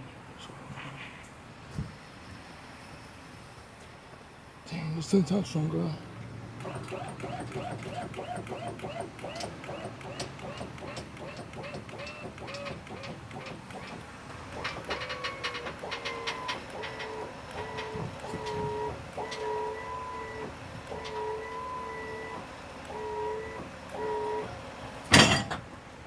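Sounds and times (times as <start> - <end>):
hydraulics whining: 6.5 - 25.8
loud metal clank: 25.1 - 25.6.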